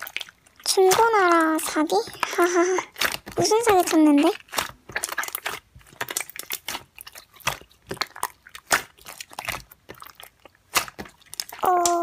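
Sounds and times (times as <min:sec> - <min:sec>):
slime crackling when squeezed: 0:03.0 - 0:12.0.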